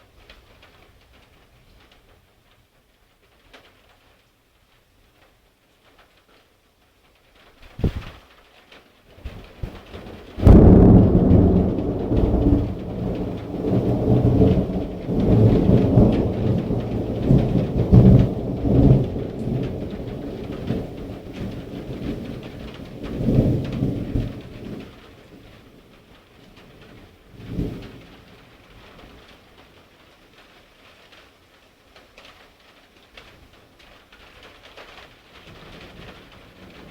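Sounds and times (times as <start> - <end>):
rain falling: 0.0 - 36.9
thunder crack and rumble: 9.1 - 29.8, 34.8 - 36.9.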